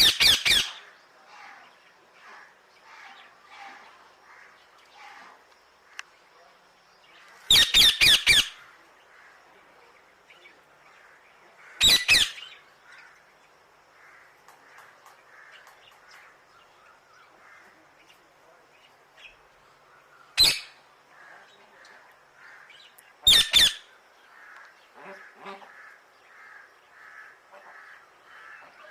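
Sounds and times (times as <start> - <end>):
parrot squawking: 0.0 - 0.8, 7.5 - 8.6, 11.8 - 12.5, 23.3 - 23.9.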